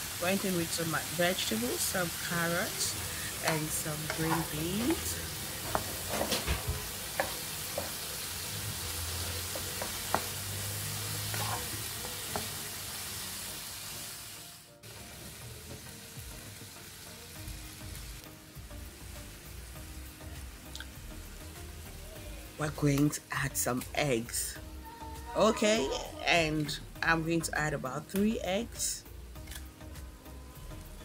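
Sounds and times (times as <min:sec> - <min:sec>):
food sizzling in a wok: 0:00.0 - 0:26.7.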